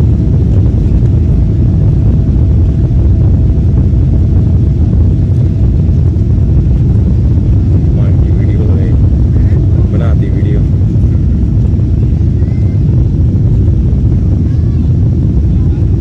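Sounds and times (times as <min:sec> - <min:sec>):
faint steady hum: 0:00.0 - 0:16.0
jet engines roaring in cabin: 0:00.0 - 0:16.0.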